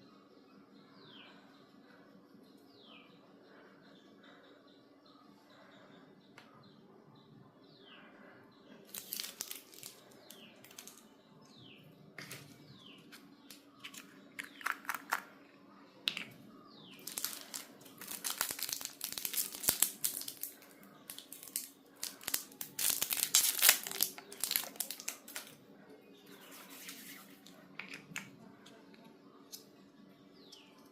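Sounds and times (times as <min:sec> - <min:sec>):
packaging crinkling and tearing: 0:08.9 - 0:11.0, 0:17.0 - 0:25.5.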